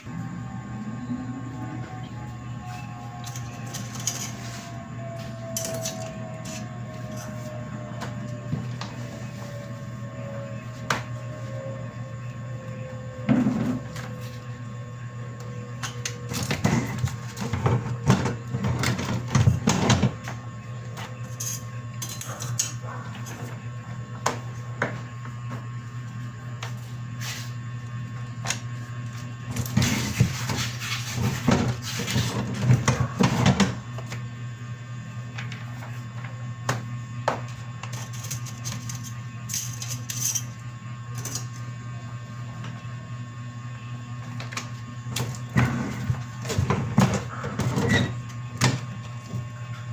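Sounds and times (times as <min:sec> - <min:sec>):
printer humming: 0:00.0 - 0:21.2.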